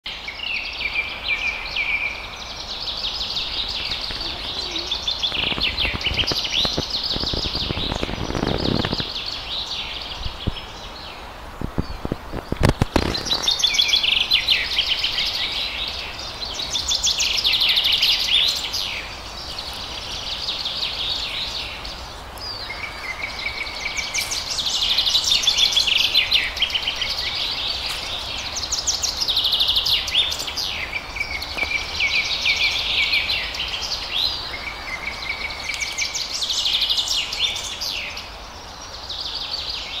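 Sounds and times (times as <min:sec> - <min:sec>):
faint outdoor background noise: 0:00.0 - 0:40.0
songbirds chirping trills: 0:00.1 - 0:40.0
wind thuds on microphone: 0:03.8 - 0:09.3, 0:10.2 - 0:10.7, 0:11.5 - 0:14.0.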